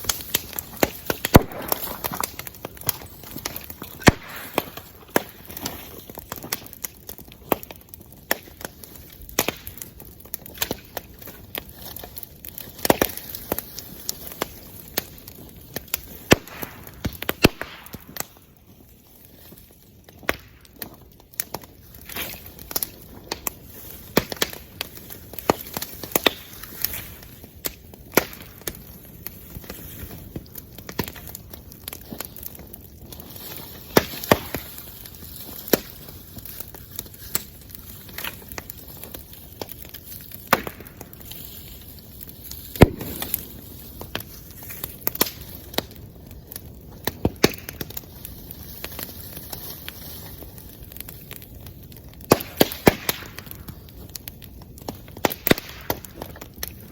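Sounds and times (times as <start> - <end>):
sharp pops and cracks: 0.0 - 56.9
wood bonfire crackling: 0.0 - 56.9.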